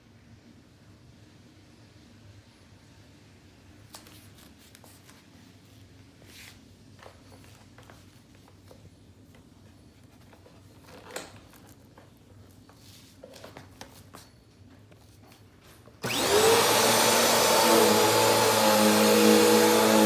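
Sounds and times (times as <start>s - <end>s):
vacuum cleaner motor running: 16.0s - 20.0s.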